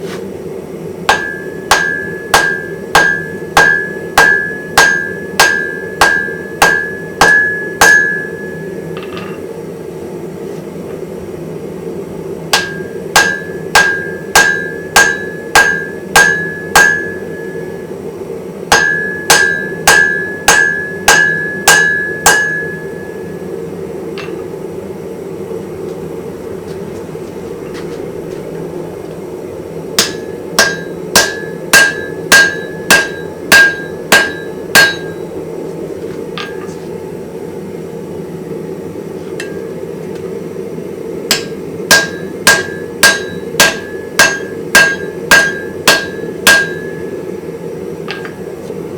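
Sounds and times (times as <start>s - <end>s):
steady low hum: 0.0s - 48.9s
hammer striking an anvil: 1.1s - 9.4s, 12.5s - 17.8s, 18.7s - 23.4s, 24.2s - 24.5s, 30.0s - 35.4s, 36.3s - 36.8s, 39.4s - 39.7s, 41.3s - 47.2s, 48.1s - 48.5s.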